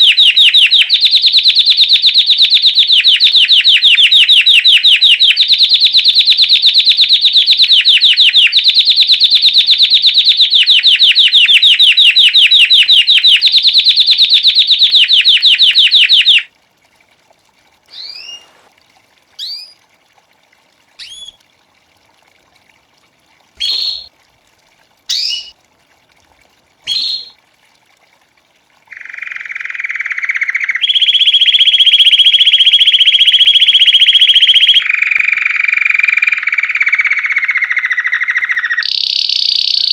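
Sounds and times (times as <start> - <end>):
canary singing trills and chirps: 0.0 - 16.5, 17.9 - 18.6, 19.4 - 19.8, 21.0 - 21.4, 23.6 - 24.1, 25.1 - 25.5, 26.9 - 27.3, 28.9 - 39.9.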